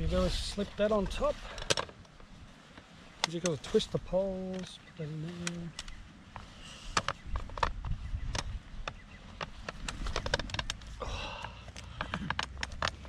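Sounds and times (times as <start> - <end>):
metal poles clicking and knocking: 6.9 - 13.0.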